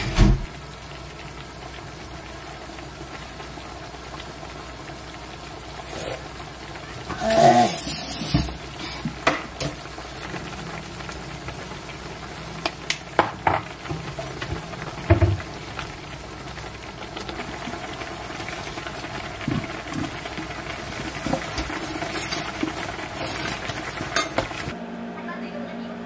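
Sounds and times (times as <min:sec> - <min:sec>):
food sizzling in a pot: 0:00.0 - 0:24.8.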